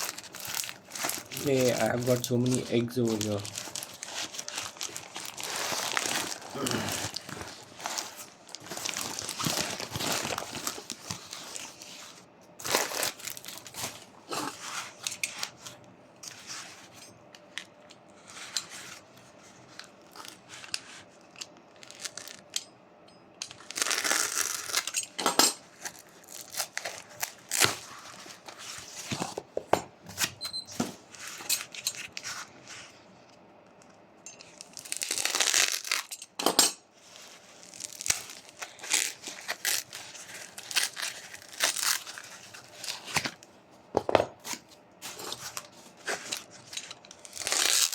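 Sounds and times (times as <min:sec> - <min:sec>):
packaging crinkling and tearing: 0:00.0 - 0:16.6, 0:19.6 - 0:22.5, 0:23.6 - 0:29.5, 0:34.4 - 0:36.3, 0:37.0 - 0:43.5, 0:44.4 - 0:47.9.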